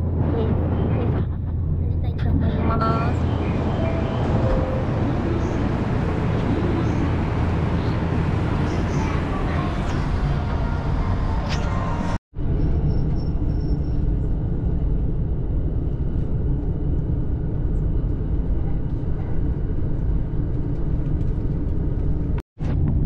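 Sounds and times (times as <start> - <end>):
train rumbling inside carriage: 0.0 - 23.0.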